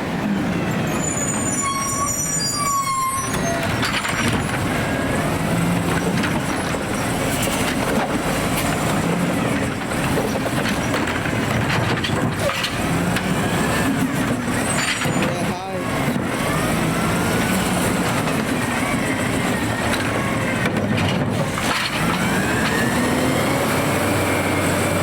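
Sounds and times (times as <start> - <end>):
garbage truck running: 0.0 - 25.0
brief squeal: 0.9 - 4.5.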